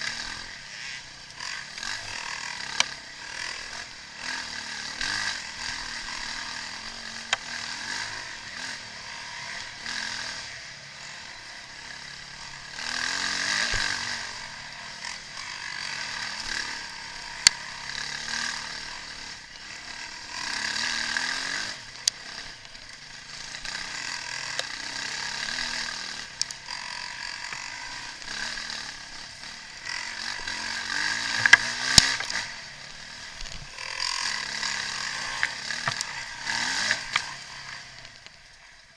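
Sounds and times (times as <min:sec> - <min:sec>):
motocross bike engines revving: 0:00.0 - 0:38.9
sharp clicks: 0:31.3 - 0:32.4.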